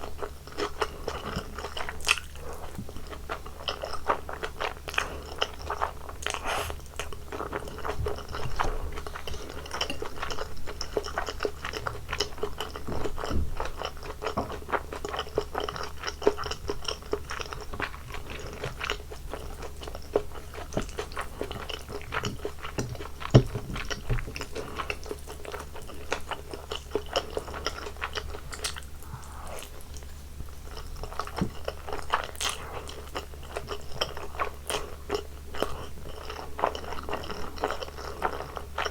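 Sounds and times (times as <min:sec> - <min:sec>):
person chewing food: 0:00.0 - 0:38.9
food crunching: 0:00.1 - 0:38.9.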